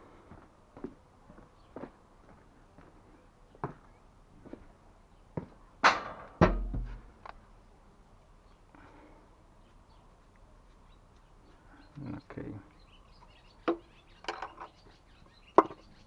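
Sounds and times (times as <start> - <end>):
heavy thud: 6.0 - 7.1.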